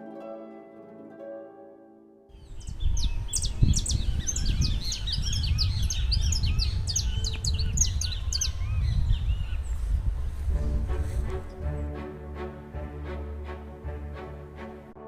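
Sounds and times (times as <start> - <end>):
small birds chirping: 2.4 - 10.5
steady low rumble: 2.6 - 11.8.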